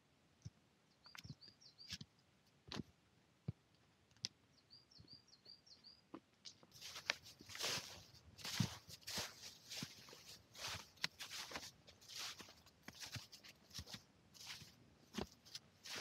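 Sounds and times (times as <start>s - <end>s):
small bird calling: 0.9s - 2.0s, 4.5s - 6.1s
footsteps crunching snow and leaves: 6.7s - 16.0s.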